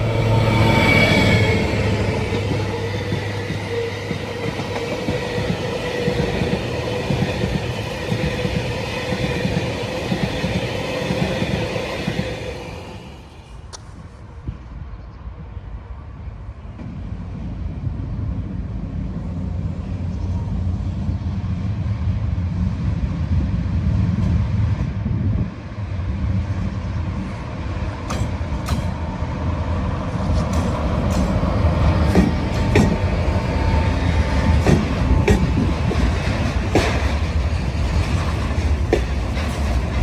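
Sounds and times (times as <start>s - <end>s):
train rumbling: 0.0s - 40.0s
wheels clicking over rail joints: 29.8s - 40.0s.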